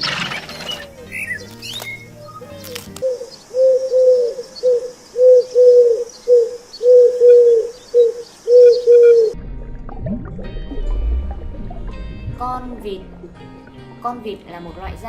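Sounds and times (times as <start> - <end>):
bird cooing: 2.0 - 9.4.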